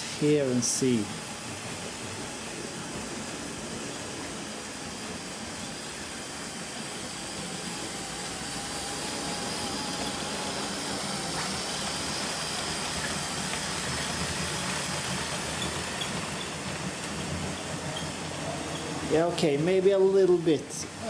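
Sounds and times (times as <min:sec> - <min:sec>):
toy train motor whining: 0:04.7 - 0:19.4
wheels rolling on plastic track: 0:06.8 - 0:21.0.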